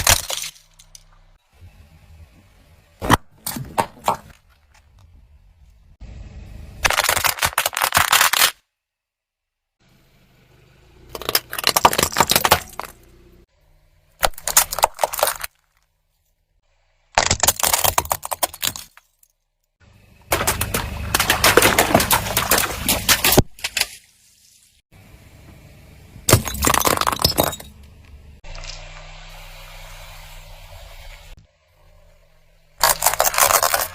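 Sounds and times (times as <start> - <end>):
objects crunching under car tyre: 0.0 - 1.4, 3.0 - 5.3, 11.1 - 13.1, 14.2 - 15.9, 17.1 - 19.2, 20.2 - 24.0, 32.8 - 33.9.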